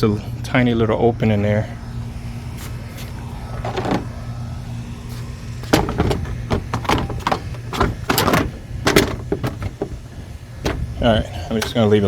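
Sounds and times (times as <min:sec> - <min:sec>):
steady low hum: 0:00.0 - 0:12.0
plastic trim clicks and knocks: 0:05.7 - 0:10.0, 0:10.6 - 0:11.9.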